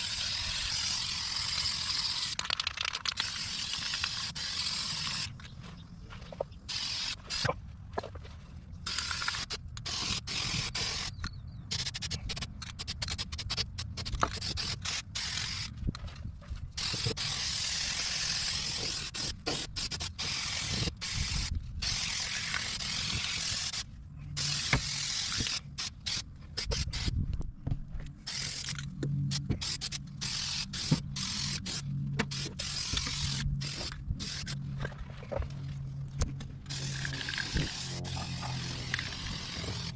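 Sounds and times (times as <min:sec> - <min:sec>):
aerosol spray can spraying: 0:00.0 - 0:05.3, 0:06.7 - 0:07.5, 0:08.9 - 0:11.1, 0:11.7 - 0:15.7, 0:24.4 - 0:27.1, 0:29.6 - 0:34.6, 0:36.7 - 0:39.9.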